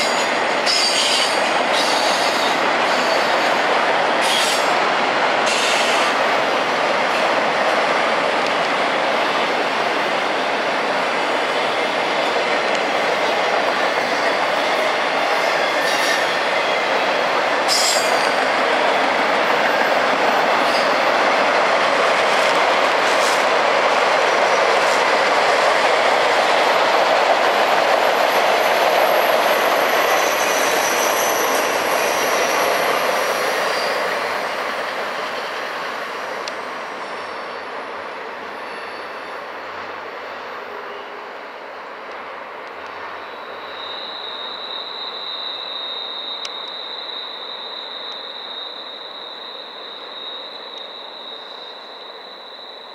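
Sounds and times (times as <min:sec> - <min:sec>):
faint high wheel squeal: 0:00.0 - 0:03.5, 0:17.7 - 0:21.3, 0:29.9 - 0:34.5, 0:37.0 - 0:39.6, 0:43.0 - 0:52.9
freight train wheels rumbling: 0:00.0 - 0:52.9.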